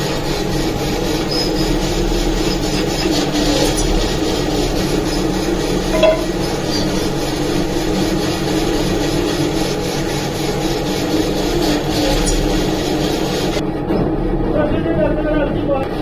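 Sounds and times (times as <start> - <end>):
mechanical running noise: 0.0 - 16.0.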